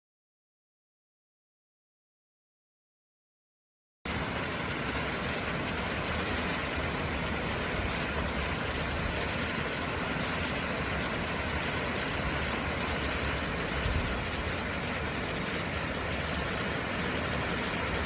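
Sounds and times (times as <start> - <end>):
mountain stream rushing water: 4.1 - 18.0.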